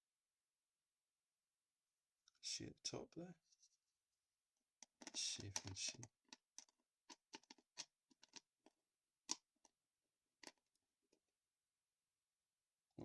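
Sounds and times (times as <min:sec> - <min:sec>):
small container clicks and taps: 0:04.8 - 0:08.5, 0:10.4 - 0:10.6.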